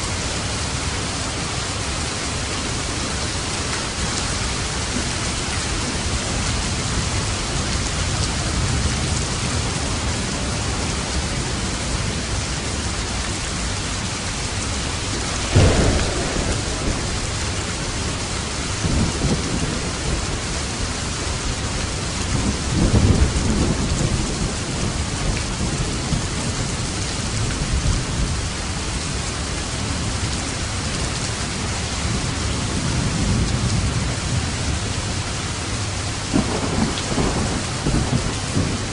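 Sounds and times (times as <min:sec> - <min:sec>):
heavy rain: 0:00.0 - 0:38.9
thunder clap and rumbles: 0:14.0 - 0:30.2, 0:32.0 - 0:38.9.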